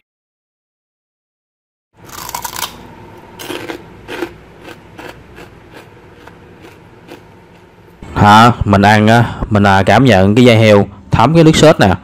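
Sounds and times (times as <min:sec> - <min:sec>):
crunchy chewing: 0:02.0 - 0:02.8, 0:03.4 - 0:08.0.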